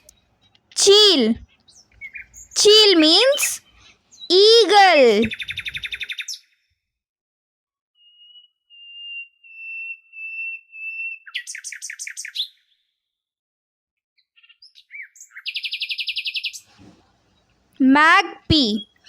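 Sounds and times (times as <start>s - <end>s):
bird of prey whistling call: 8.1s - 12.5s.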